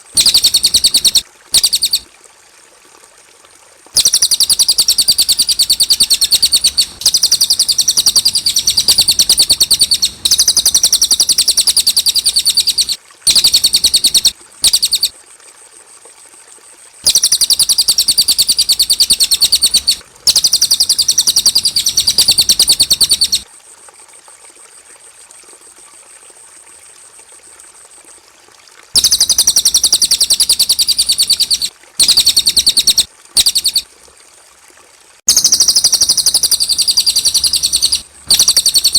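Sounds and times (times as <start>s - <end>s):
bird singing rapid trills: 0.2s - 2.0s, 4.0s - 15.1s, 17.1s - 23.4s, 29.0s - 33.8s, 35.3s - 38.9s.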